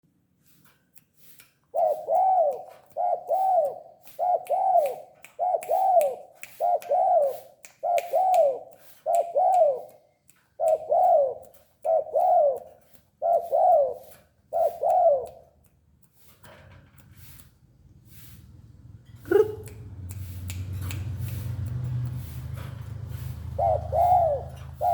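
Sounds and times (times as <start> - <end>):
dove cooing: 1.7 - 9.9, 10.6 - 15.4, 19.2 - 19.6, 23.0 - 24.9.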